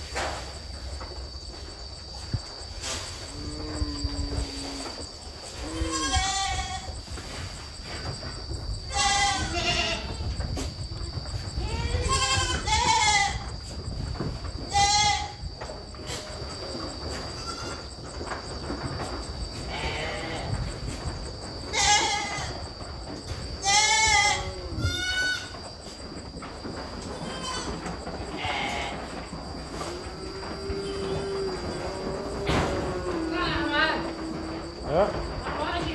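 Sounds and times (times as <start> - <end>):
goats bleating: 5.6 - 7.0, 11.6 - 13.4, 21.7 - 22.6, 23.6 - 25.5, 27.1 - 35.9.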